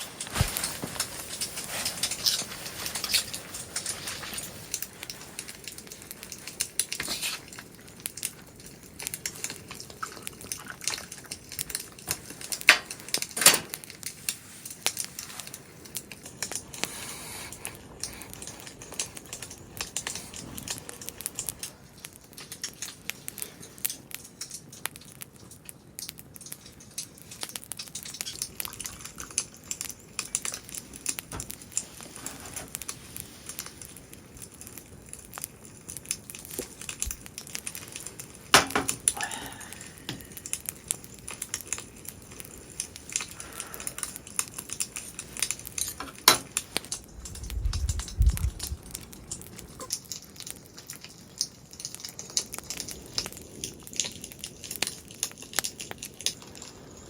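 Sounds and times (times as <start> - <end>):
cooking gear clinking and rustling: 0.0 - 16.8, 35.7 - 57.0.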